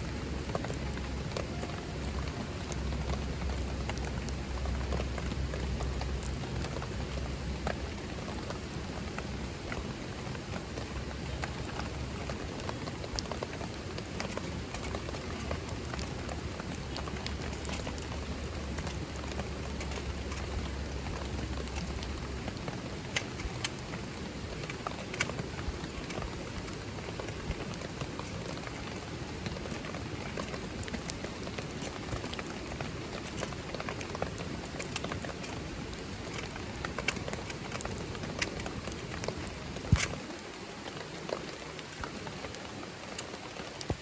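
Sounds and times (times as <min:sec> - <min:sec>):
low rumble: 0:00.0 - 0:23.4
rain falling: 0:00.0 - 0:44.0.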